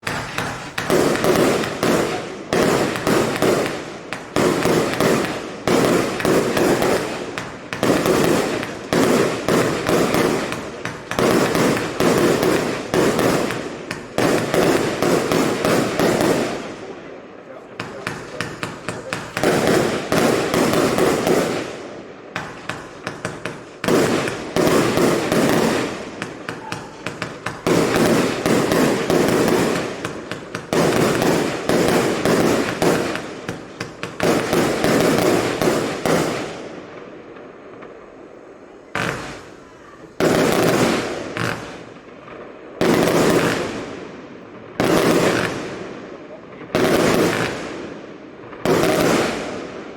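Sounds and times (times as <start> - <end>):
fireworks launching and bursting: 0.0 - 49.9
heavy firework bursts: 0.0 - 49.9.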